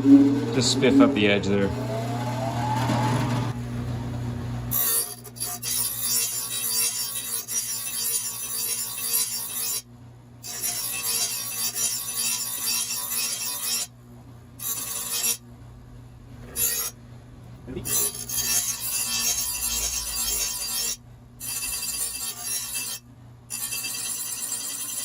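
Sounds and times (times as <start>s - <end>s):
steady low hum: 0.0s - 5.4s, 13.9s - 23.6s
metal rasping on blade edge: 4.7s - 9.8s, 10.5s - 13.9s, 14.6s - 15.4s, 16.4s - 17.0s, 17.8s - 25.0s.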